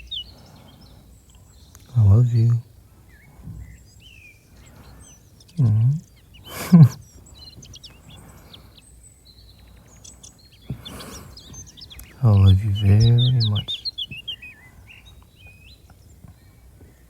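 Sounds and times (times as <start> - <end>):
faint birdsong: 0.0 - 17.0
man humming low: 1.9 - 2.6, 5.6 - 7.0, 12.2 - 13.7.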